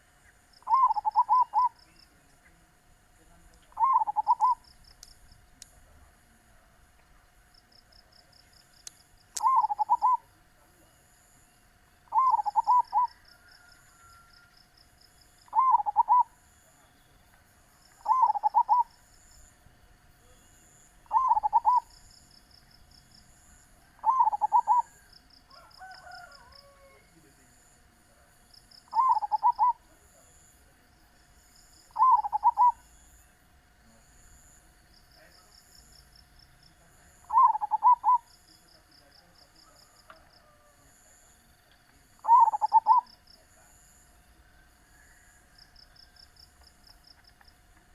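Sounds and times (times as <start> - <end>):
high pulsing insect trill: 0.0 - 47.9
dove cooing: 0.6 - 2.0, 3.7 - 4.6, 9.4 - 10.3, 12.1 - 14.3, 15.5 - 16.4, 18.0 - 19.0, 21.0 - 22.0, 23.8 - 27.0, 28.9 - 29.9, 31.9 - 32.8, 37.2 - 38.3, 42.2 - 43.1.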